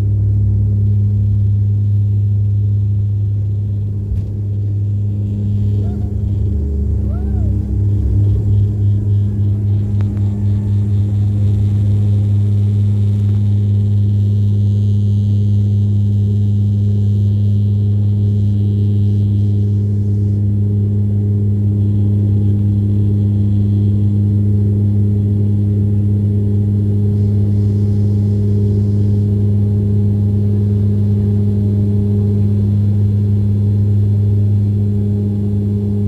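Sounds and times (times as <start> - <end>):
propeller drone in cabin: 0.0 - 36.0.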